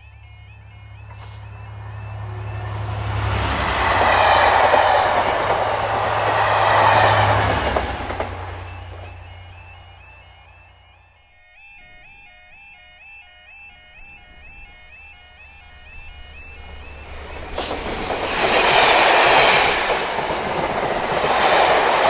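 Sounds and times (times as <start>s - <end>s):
train wheels rushing on rails: 0.0s - 10.9s, 15.7s - 22.0s
diesel locomotive engine drone: 0.0s - 12.5s, 13.8s - 22.0s.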